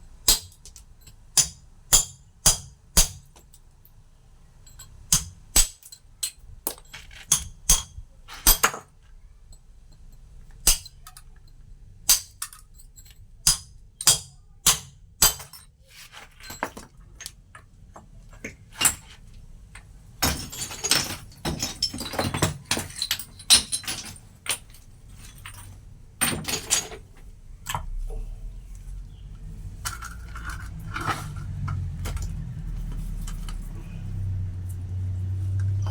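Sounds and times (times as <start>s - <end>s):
metal chisel striking stone: 1.4s - 3.2s, 6.7s - 8.8s.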